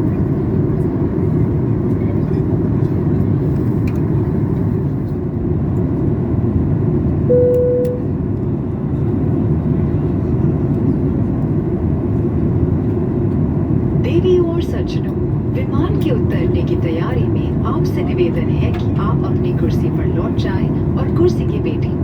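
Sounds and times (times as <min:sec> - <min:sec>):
airplane cabin airflow and engine noise: 0:00.0 - 0:22.0
short steady tone: 0:07.3 - 0:08.1.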